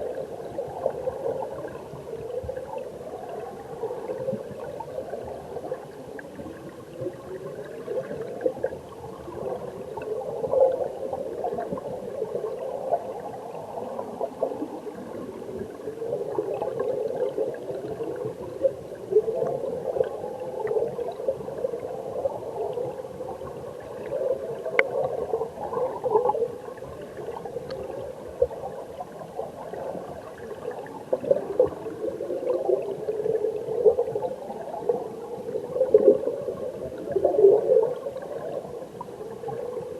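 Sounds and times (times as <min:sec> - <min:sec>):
muffled underwater stream gurgle: 0:00.0 - 0:39.9
faint clicks: 0:24.7 - 0:25.1.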